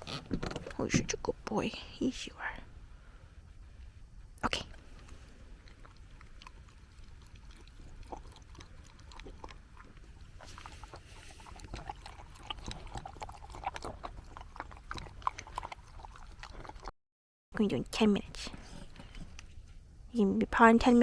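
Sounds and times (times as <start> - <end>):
dog eating crunchy food: 4.6 - 16.9.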